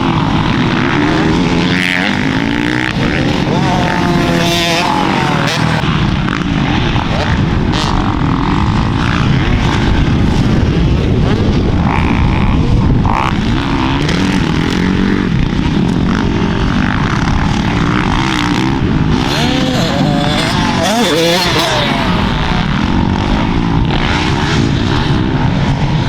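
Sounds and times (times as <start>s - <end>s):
dirt bike engine revving: 0.1s - 5.9s, 16.0s - 25.2s.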